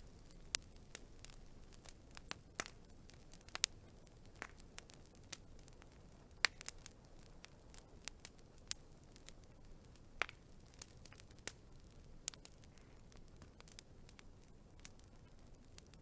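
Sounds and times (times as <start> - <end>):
soft low hiss: 0.0 - 16.0
wood fire crackling: 0.0 - 16.0.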